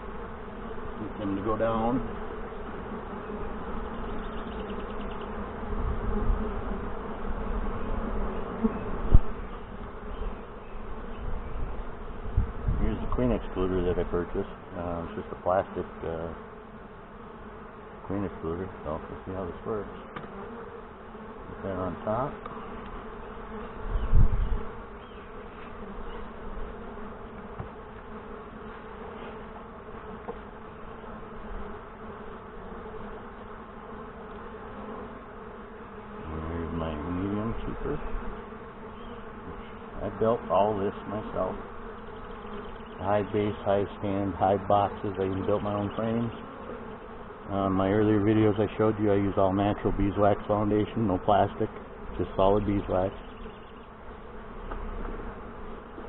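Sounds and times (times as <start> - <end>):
bees buzzing: 0.0 - 56.0
thump: 20.1 - 20.4, 27.5 - 27.8.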